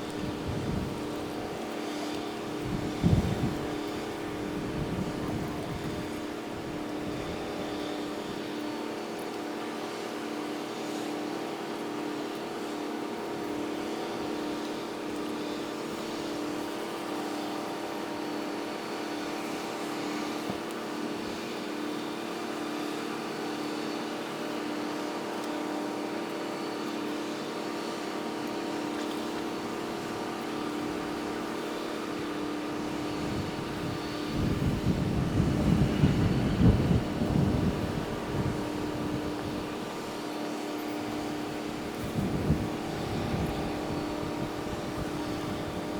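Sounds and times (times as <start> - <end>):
steady engine hum: 29.1 - 45.9.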